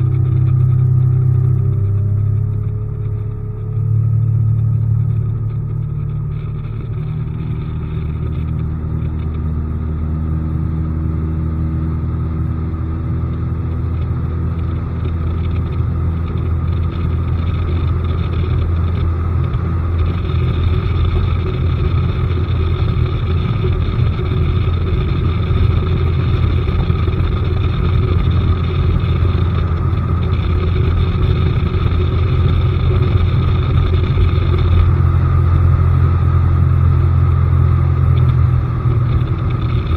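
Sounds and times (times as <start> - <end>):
outboard motor rumbling: 0.0 - 39.9.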